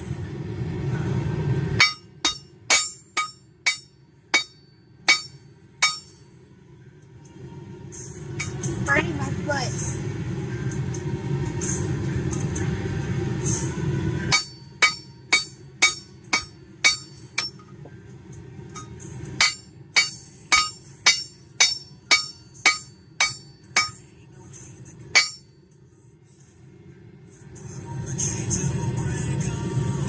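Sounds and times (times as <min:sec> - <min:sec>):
hammer striking metal on anvil: 0:01.8 - 0:06.3, 0:08.3 - 0:08.8, 0:14.3 - 0:17.8, 0:18.7 - 0:24.2, 0:25.1 - 0:25.6.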